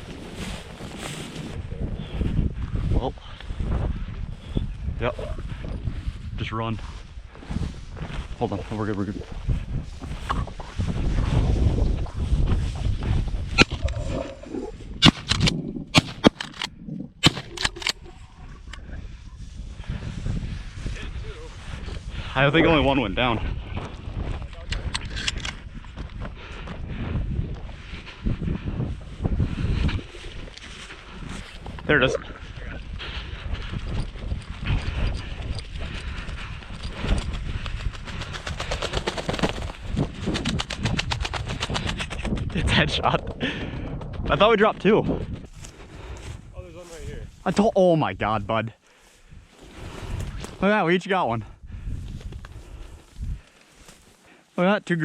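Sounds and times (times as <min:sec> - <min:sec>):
footsteps crunching through dry grass: 0:00.0 - 0:04.6, 0:05.2 - 0:14.9, 0:25.6 - 0:38.2, 0:45.3 - 0:50.7, 0:51.8 - 0:55.0
shotgun shots: 0:15.0 - 0:16.5, 0:17.2 - 0:17.9.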